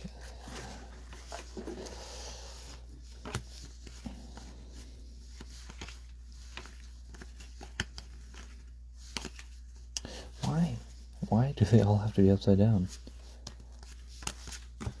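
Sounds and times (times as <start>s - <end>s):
cards rustling: 0.0s - 15.0s
soft clicks of cards: 2.5s - 10.6s, 12.9s - 15.0s.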